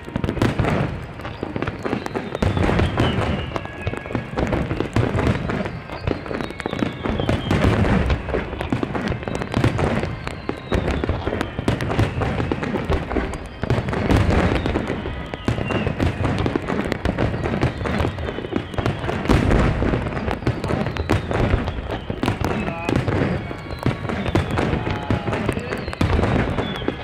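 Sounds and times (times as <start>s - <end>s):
firework shell bursts and crackling: 0.0s - 27.0s
falling whistle tones: 1.2s - 27.0s.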